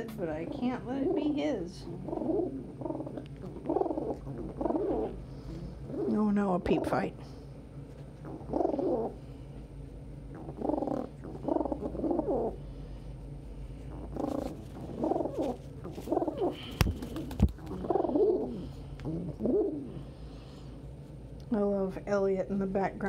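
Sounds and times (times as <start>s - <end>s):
pigeons calling: 0.0s - 7.0s, 8.2s - 9.4s, 10.3s - 13.0s, 13.7s - 20.7s.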